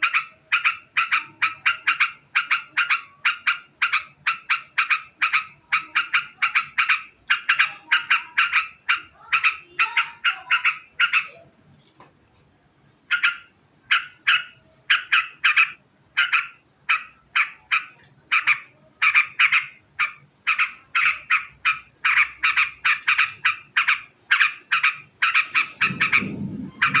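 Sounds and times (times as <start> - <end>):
bird chattering call: 0.0 - 11.4, 13.1 - 27.0
low rumble: 25.5 - 27.0.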